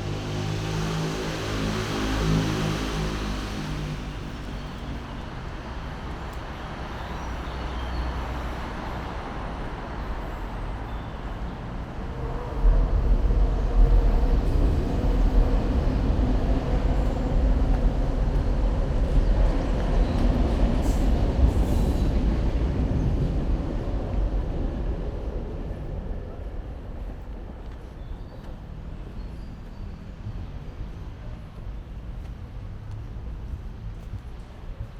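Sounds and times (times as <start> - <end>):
train passing rumble: 0.0 - 34.9.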